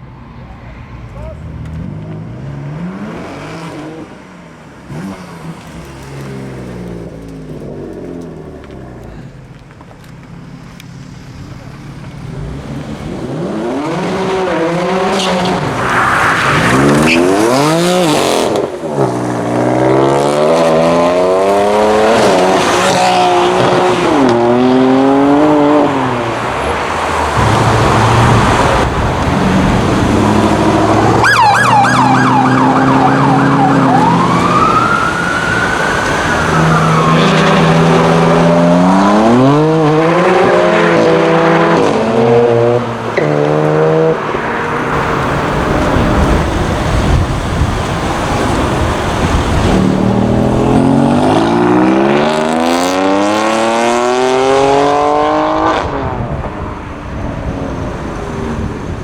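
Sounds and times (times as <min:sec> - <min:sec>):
car engine revving through gears: 0:12.1 - 0:56.4.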